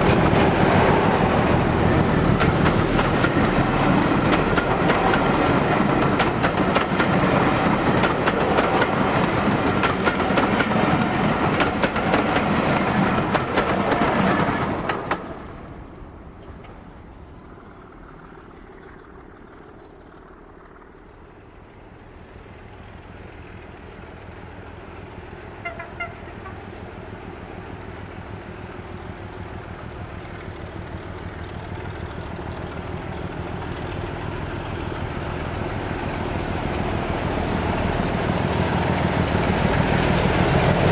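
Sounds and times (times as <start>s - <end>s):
wheels clattering on rails: 0.0s - 24.5s
diesel train passing: 0.0s - 40.9s
distant diesel locomotive engine: 0.0s - 40.9s.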